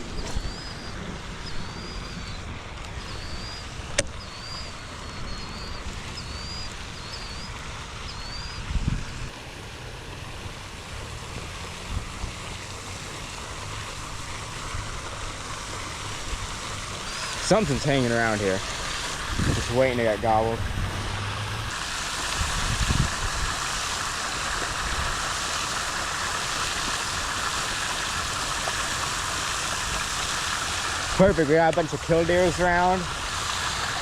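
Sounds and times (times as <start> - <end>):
bird chirping: 0.0 - 8.7
wind: 0.0 - 34.0.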